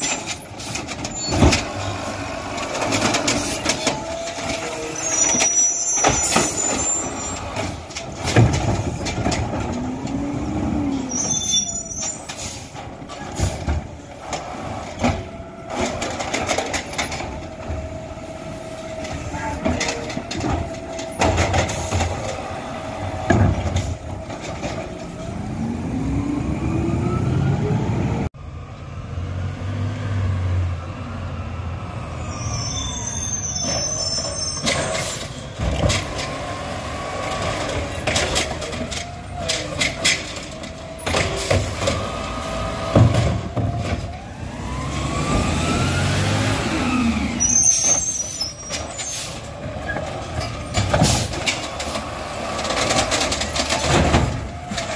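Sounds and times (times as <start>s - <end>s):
diesel engine revving: 0.0s - 32.3s, 34.8s - 54.9s
clanks and knocks: 2.5s - 10.2s, 12.0s - 17.9s, 18.9s - 22.4s, 23.1s - 25.3s, 37.3s - 42.2s, 48.7s - 54.9s
high squeals: 4.6s - 7.6s, 11.0s - 12.7s, 32.0s - 35.5s, 46.9s - 50.6s.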